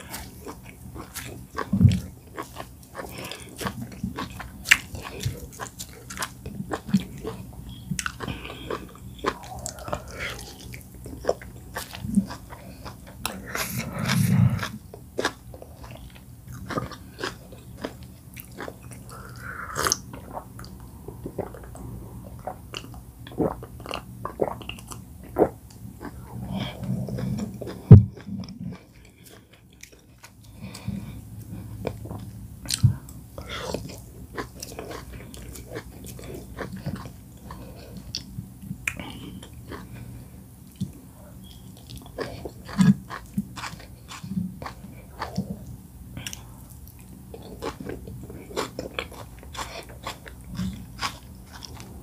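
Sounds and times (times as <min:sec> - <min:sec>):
wet chewing: 0:00.0 - 0:40.0, 0:40.7 - 0:52.0.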